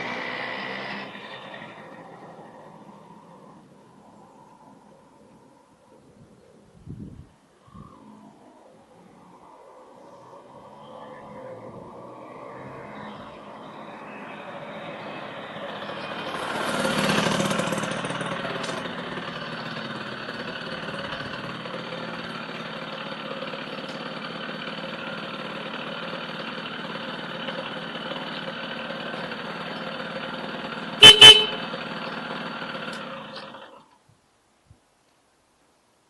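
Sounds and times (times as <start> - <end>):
moped engine idling: 14.3 - 33.9
moped horn toots: 30.9 - 31.9.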